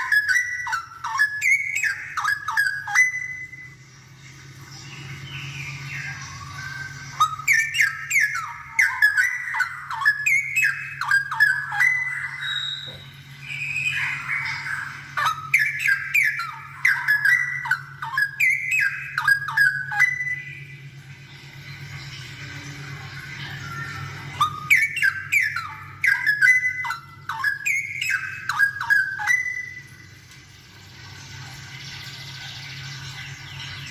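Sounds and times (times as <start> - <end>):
bird singing whistled notes: 0.0 - 3.9, 4.7 - 20.9, 23.4 - 30.2
steady low hum: 0.0 - 33.9.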